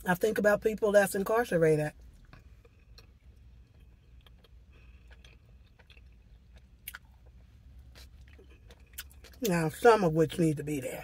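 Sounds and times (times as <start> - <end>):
low steady hum: 0.0 - 11.0
person chewing: 2.0 - 9.6.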